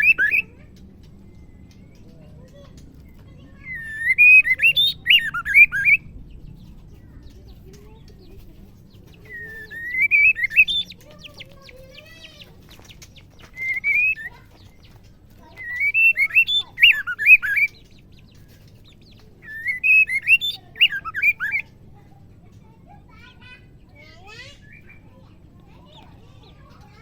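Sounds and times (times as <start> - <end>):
bird singing whistled notes: 0.0 - 0.5, 3.5 - 6.2, 9.2 - 11.7, 13.4 - 14.8, 15.4 - 18.3, 19.0 - 21.7.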